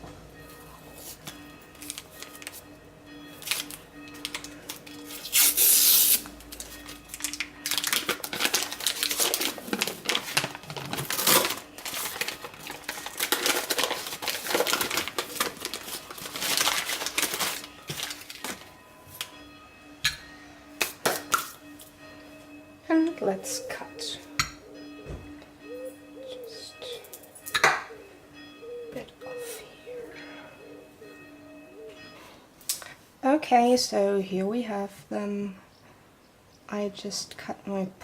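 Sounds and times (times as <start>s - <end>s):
cardboard tearing and crinkling: 5.1s - 18.7s.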